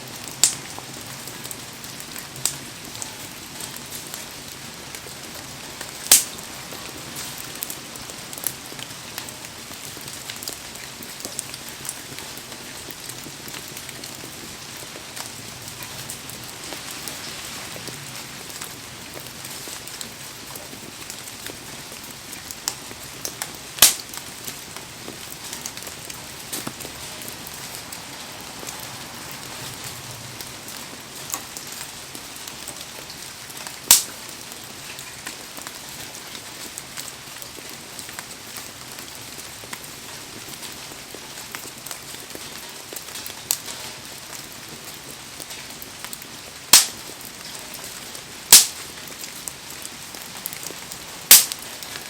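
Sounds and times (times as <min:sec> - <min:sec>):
heavy rain hissing: 0:00.0 - 0:42.8
campfire sharp pops: 0:06.0 - 0:06.4, 0:22.6 - 0:27.8, 0:33.9 - 0:34.1, 0:46.7 - 0:47.1, 0:48.5 - 0:48.9, 0:51.3 - 0:52.0.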